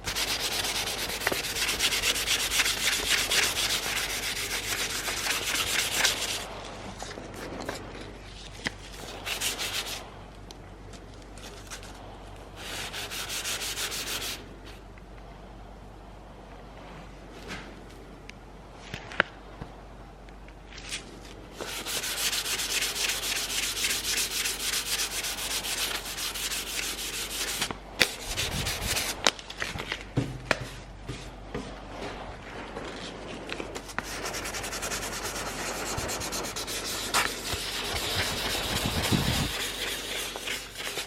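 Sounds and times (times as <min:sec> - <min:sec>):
sanding metal rasping: 0:00.0 - 0:06.5, 0:09.2 - 0:10.0, 0:12.6 - 0:14.4, 0:21.6 - 0:29.2, 0:34.0 - 0:41.0.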